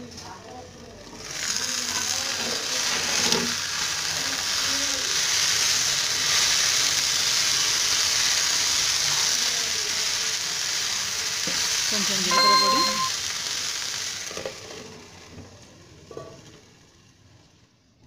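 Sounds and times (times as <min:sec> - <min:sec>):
okra sizzling in oil: 0:00.0 - 0:17.9.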